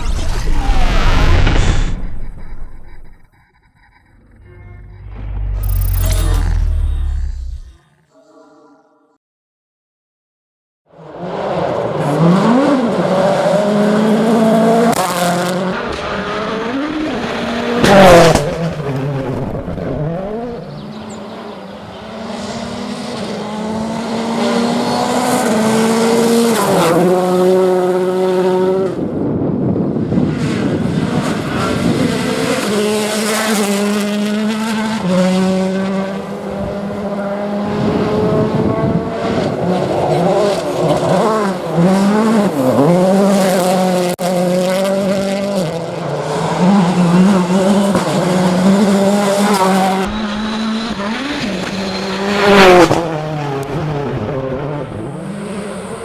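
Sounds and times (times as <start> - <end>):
rally car engines at full throttle: 0.0 - 7.8, 10.9 - 56.0
loud engine burst: 0.0 - 7.9.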